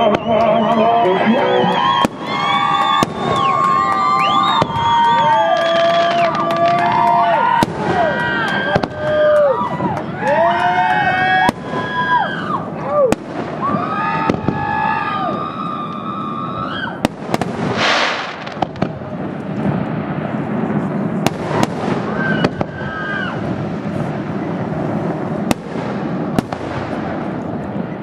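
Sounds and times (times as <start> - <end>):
firework shells bursting: 1.7 - 14.8, 17.0 - 27.7
firework hiss: 11.2 - 27.9.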